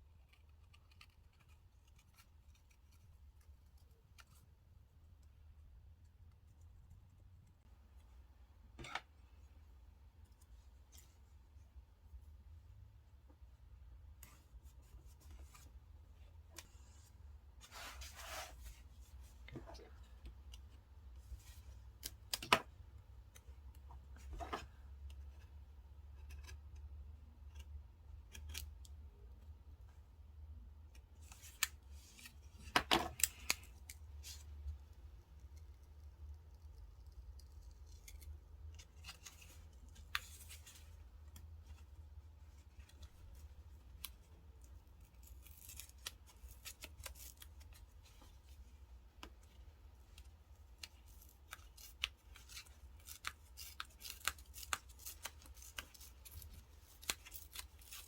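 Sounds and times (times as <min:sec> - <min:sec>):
scissors snipping paper: 0:50.7 - 0:58.0.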